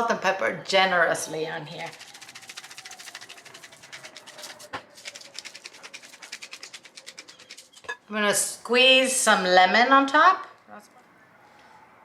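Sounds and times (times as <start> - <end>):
pepper mill grinding: 1.7 - 8.0.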